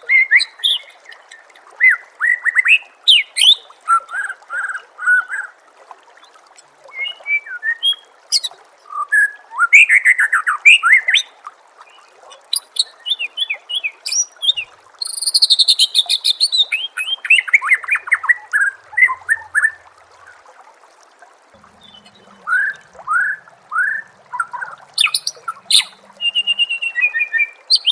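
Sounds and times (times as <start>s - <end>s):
songbird whistling and trilling: 6.9s - 11.3s, 12.5s - 19.8s, 21.8s - 27.9s.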